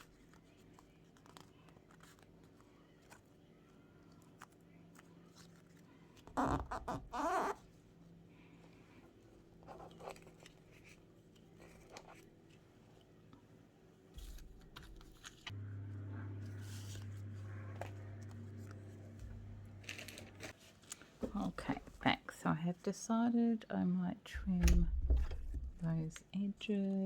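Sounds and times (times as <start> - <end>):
paper rustling and clicking: 0.0 - 6.3, 9.6 - 13.1, 14.2 - 15.5, 19.8 - 21.9
steady low hum: 14.2 - 20.6, 24.3 - 26.6.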